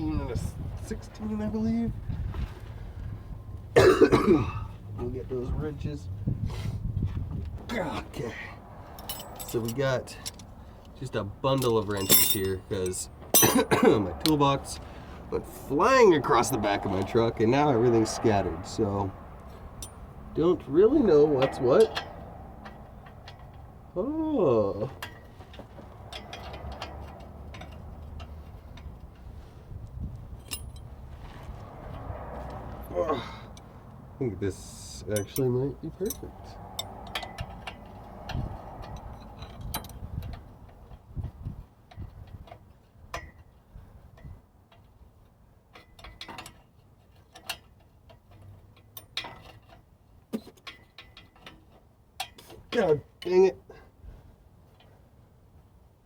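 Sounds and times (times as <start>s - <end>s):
wrench clinking on metal: 9.0s - 10.5s, 11.5s - 14.4s, 19.8s - 20.0s, 30.3s - 30.9s, 35.1s - 40.5s.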